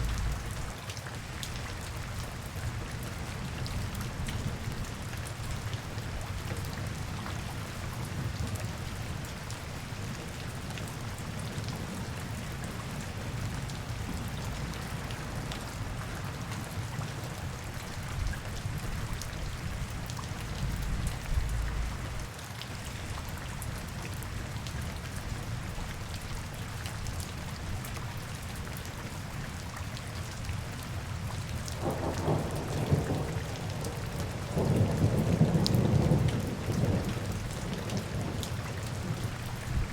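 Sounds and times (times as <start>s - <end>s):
low rumble: 0.0s - 0.7s, 20.4s - 22.3s
rain hissing: 0.0s - 0.8s, 19.7s - 22.3s
rain drops ticking: 0.0s - 39.9s.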